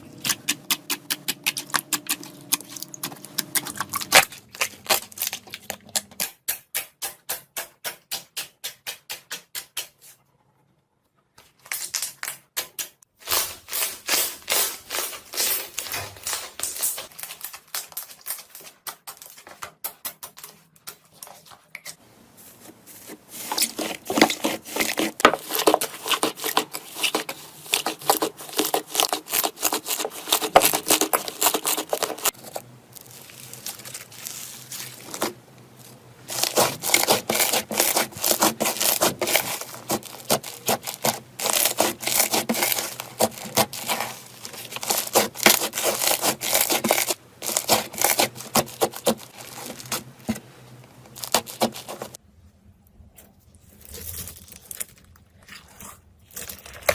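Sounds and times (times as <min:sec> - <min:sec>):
slime crackling and popping: 0:25.4 - 0:50.4.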